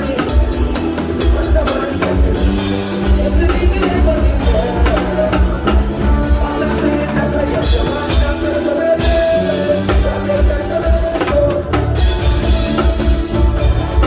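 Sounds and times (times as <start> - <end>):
bass line: 0.0 - 14.0
drum kit: 0.0 - 14.0.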